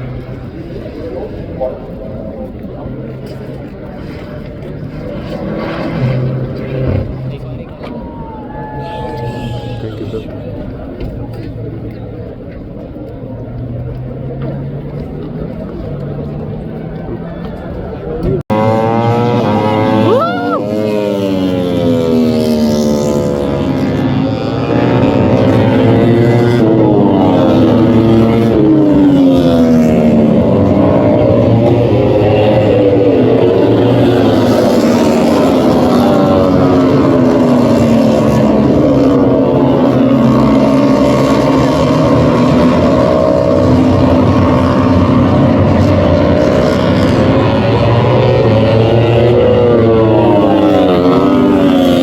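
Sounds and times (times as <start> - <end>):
race motorcycles passing at speed: 0.0 - 52.0.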